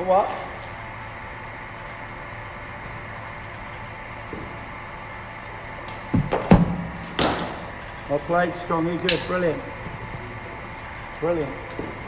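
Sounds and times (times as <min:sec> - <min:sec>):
bowling machine humming: 0:00.0 - 0:12.0.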